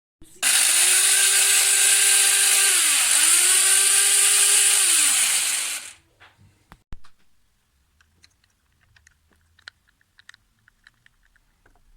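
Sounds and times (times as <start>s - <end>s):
hand blender motor whirring: 0.4s - 6.0s.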